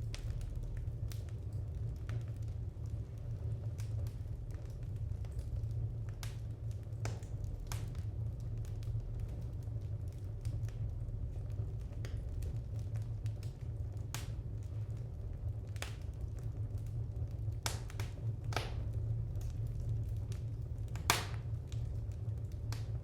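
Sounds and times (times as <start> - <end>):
wood fire crackling: 0.0 - 23.0
sharp fire pops: 17.6 - 18.9, 20.9 - 21.8.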